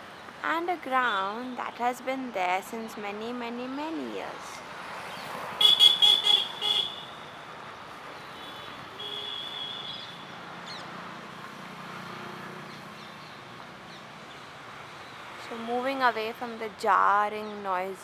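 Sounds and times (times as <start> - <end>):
passing traffic noise: 0.0 - 18.0
high-pitched vehicle horn tooting: 5.6 - 7.1, 8.4 - 10.2.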